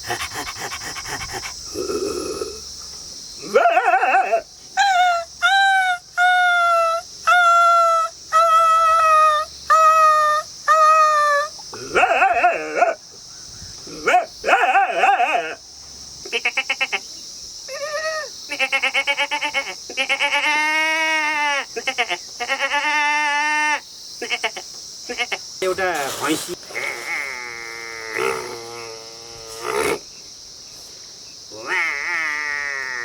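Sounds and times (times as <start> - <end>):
man imitating jackal howls: 3.4 - 13.0, 13.9 - 15.6, 17.7 - 19.6, 31.5 - 33.0.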